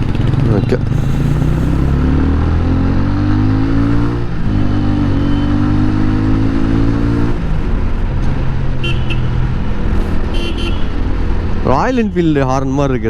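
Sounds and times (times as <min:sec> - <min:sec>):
motorcycle engine accelerating: 0:00.0 - 0:12.0
motorcycle horn beeps: 0:04.5 - 0:05.8, 0:08.8 - 0:09.3, 0:10.3 - 0:11.0.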